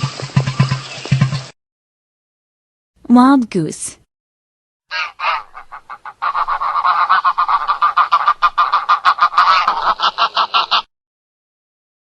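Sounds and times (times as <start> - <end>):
goose honking: 4.9 - 10.9.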